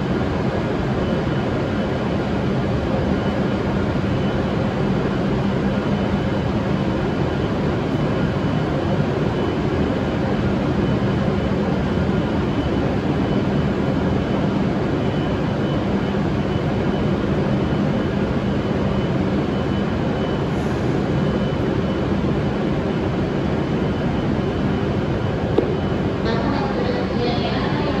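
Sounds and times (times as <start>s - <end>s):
faint high whine: 0.0s - 28.0s
train equipment humming: 19.9s - 28.0s.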